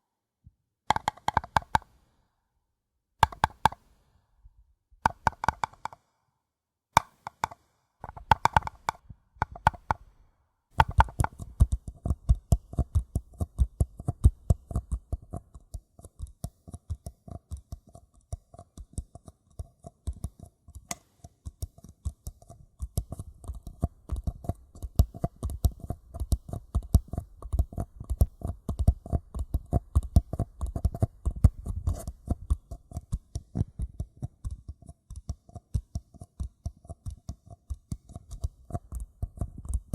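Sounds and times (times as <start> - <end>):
paper cup tapped: 0.9 - 1.9, 5.1 - 6.0, 7.0 - 10.0, 10.8 - 11.8.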